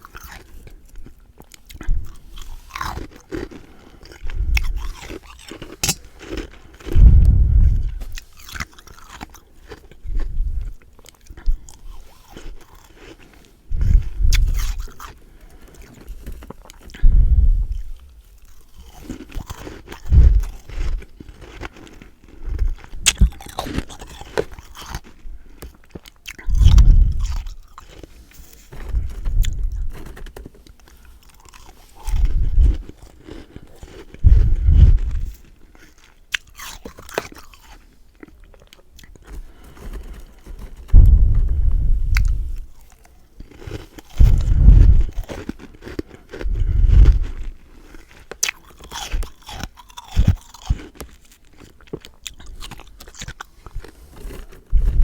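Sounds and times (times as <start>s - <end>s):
crunching chews of frost: 0.0s - 55.0s
quiet crackling chewing: 0.0s - 55.0s
deep thump: 40.9s - 42.6s.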